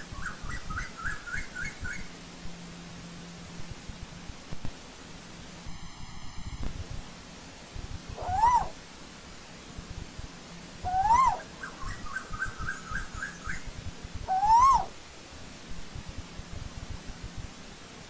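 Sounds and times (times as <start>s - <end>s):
bird whistled calls: 0.2s - 2.1s, 8.2s - 8.8s, 10.8s - 13.6s, 14.3s - 14.9s
rapid short bird notes: 8.2s - 8.8s.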